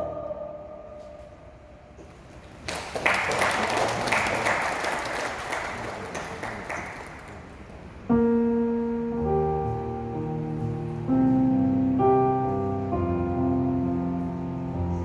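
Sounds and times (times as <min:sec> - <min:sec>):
audience applauding: 0:02.6 - 0:07.7
piano playing: 0:05.9 - 0:15.0.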